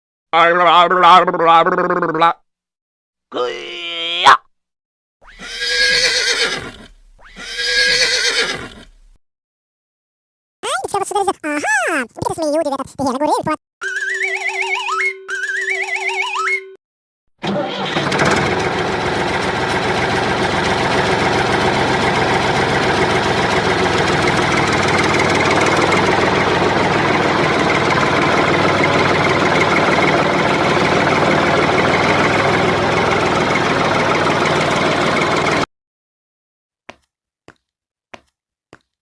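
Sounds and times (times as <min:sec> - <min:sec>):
tractor engine running: 0:17.4 - 0:35.6.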